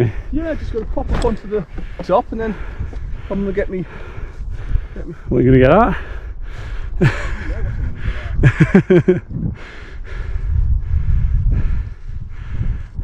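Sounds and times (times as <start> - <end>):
wind rumble on microphone: 0.0 - 13.0
person breathing hard: 1.7 - 5.3, 5.9 - 7.2, 9.5 - 13.0.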